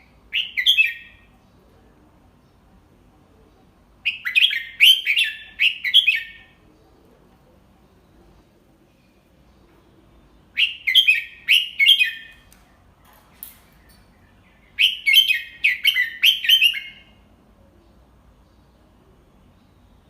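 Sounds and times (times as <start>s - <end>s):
bird singing whistled notes: 0.0s - 1.3s, 4.0s - 6.6s, 10.5s - 12.5s, 13.7s - 17.2s.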